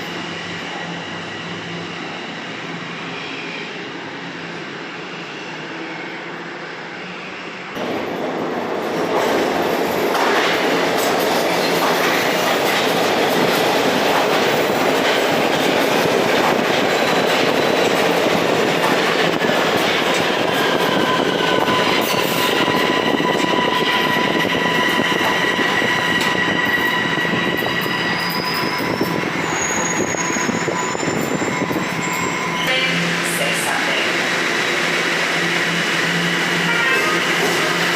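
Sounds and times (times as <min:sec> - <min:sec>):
subway train wheels on rails: 0:00.0 - 0:37.9
high-pitched tones from train: 0:20.4 - 0:34.2, 0:35.8 - 0:37.9.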